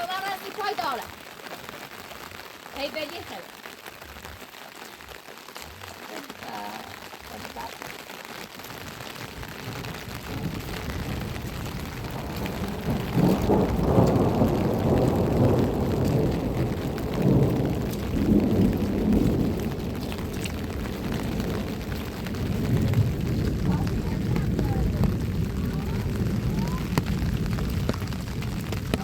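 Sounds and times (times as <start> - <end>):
steady rain: 0.0 - 29.0
thunder rolling: 8.8 - 29.0.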